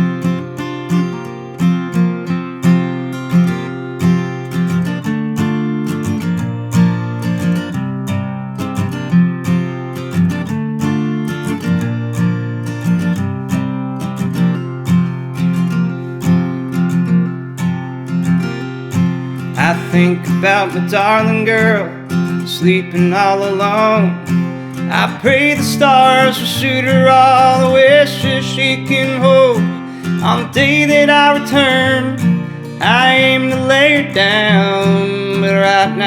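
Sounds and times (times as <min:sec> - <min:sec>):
acoustic guitar strumming chords: 0:00.0 - 0:36.0.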